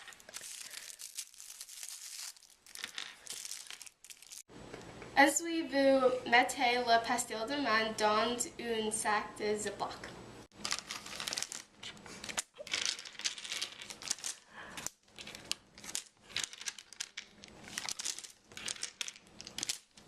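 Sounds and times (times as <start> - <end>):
plastic bag crinkling: 0.0 - 4.5, 10.5 - 20.0.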